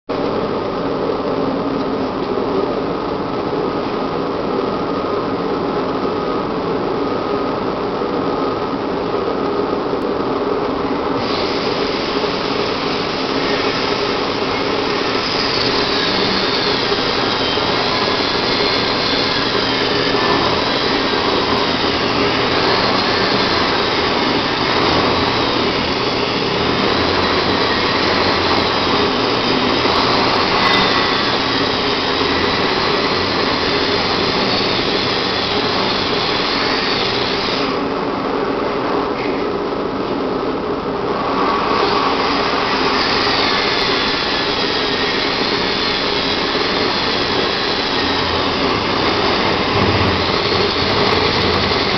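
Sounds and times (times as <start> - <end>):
high wavering whine: 0.1 - 51.9
concrete saw cutting: 11.2 - 37.9, 41.3 - 51.9.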